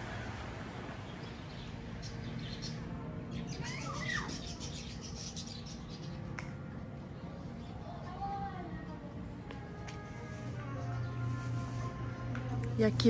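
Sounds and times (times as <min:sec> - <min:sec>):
birds chirping: 0:00.2 - 0:13.0.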